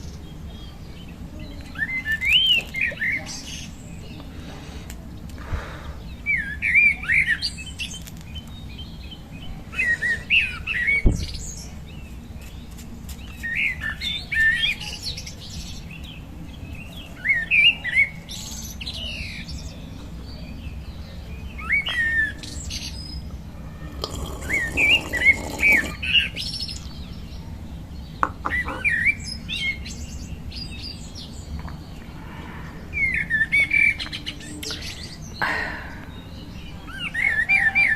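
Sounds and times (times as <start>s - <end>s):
songbird warbling: 28.2s - 29.9s.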